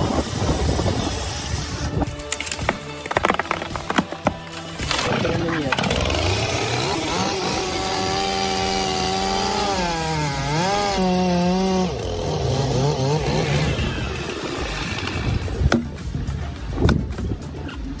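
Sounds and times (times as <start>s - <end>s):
chainsaw running at high revs: 0.0s - 2.0s, 4.8s - 15.8s.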